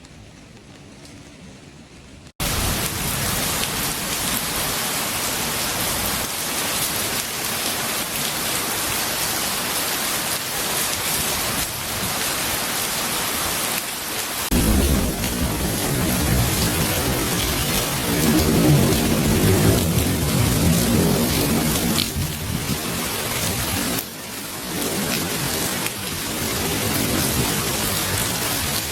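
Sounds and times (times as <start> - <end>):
rain falling: 0.0 - 28.9.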